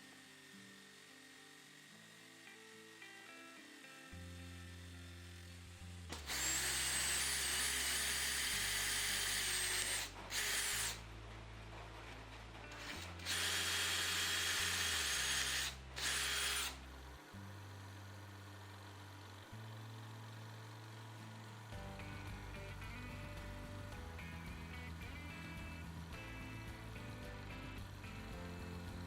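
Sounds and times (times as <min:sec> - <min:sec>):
power tool high whine: 0:00.0 - 0:11.0, 0:12.7 - 0:23.4, 0:24.0 - 0:29.0
background music: 0:19.5 - 0:29.0.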